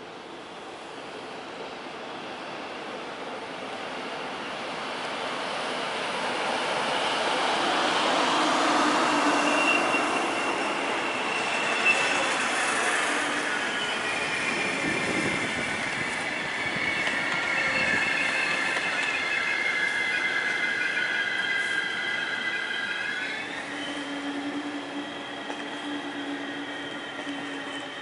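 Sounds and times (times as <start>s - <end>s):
train coaches rolling past: 0.1s - 28.0s
high squealing of running gear: 8.6s - 28.0s.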